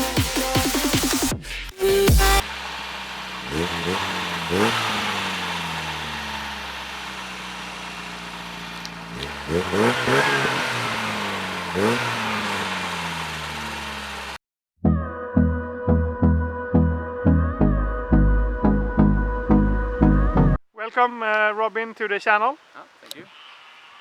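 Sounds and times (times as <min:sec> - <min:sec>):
petrol engine revving: 0:00.9 - 0:14.4.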